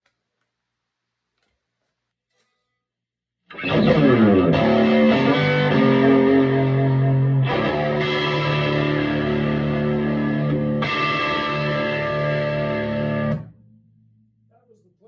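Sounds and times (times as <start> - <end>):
electric guitar ringing chords: 3.5 - 13.6.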